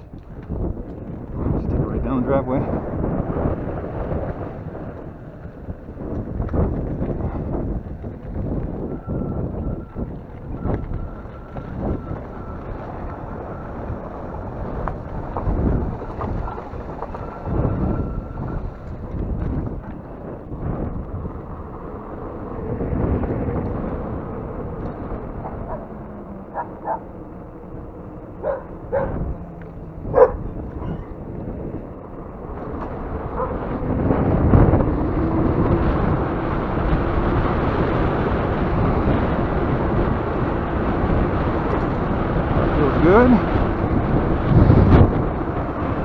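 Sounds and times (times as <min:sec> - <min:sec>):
electric dirt bike ride noise: 0:00.0 - 0:46.0
wind buffeting microphone: 0:00.0 - 0:46.0
dog barking: 0:25.4 - 0:25.9, 0:26.5 - 0:27.0, 0:28.4 - 0:29.3, 0:30.1 - 0:31.1, 0:33.4 - 0:33.6.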